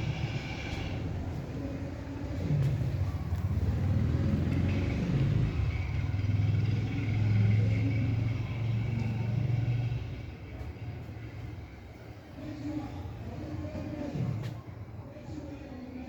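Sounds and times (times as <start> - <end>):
vehicle engine running: 0.0 - 1.5, 2.4 - 11.6.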